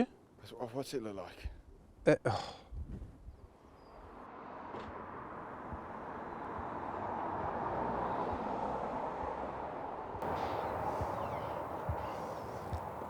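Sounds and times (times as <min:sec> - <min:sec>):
vehicle passing: 0:04.3 - 0:13.0.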